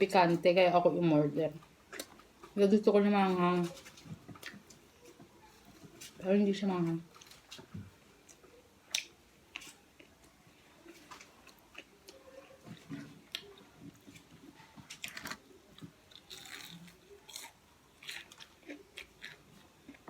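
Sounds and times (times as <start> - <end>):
person chewing food: 1.7 - 2.6, 8.2 - 20.0.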